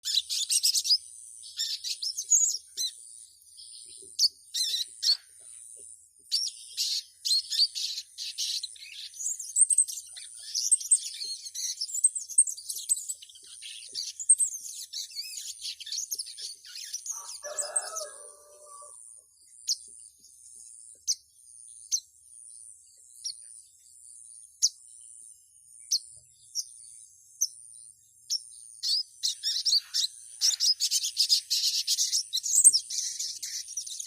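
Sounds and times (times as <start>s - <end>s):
high-pitched bird chirps: 0.0s - 3.0s, 4.0s - 5.5s, 6.3s - 18.9s, 28.3s - 34.0s
lower steady bird call: 0.0s - 34.0s.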